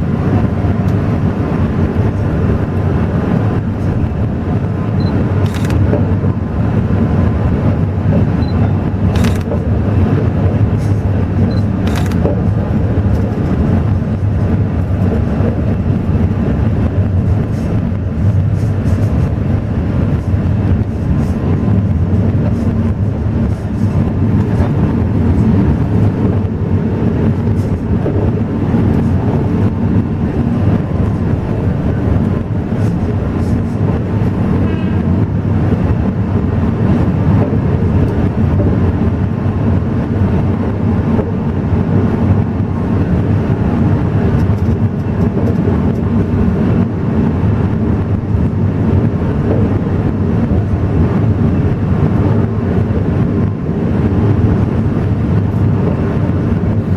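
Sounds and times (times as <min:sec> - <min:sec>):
diesel locomotive: 0:00.0 - 0:56.9
train wheels rumbling on rails: 0:00.0 - 0:56.9.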